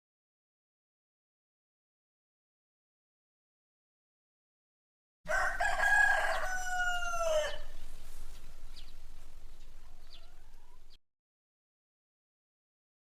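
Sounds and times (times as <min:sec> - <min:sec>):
rooster crowing: 0:05.3 - 0:11.0
faint short bird calls: 0:06.2 - 0:11.0.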